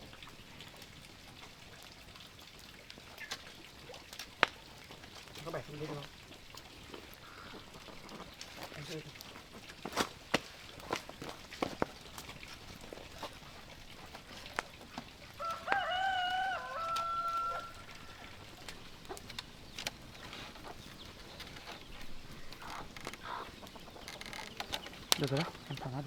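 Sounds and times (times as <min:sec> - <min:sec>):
rooster crowing: 0:15.4 - 0:18.6
light clicks and knocks: 0:18.6 - 0:26.0.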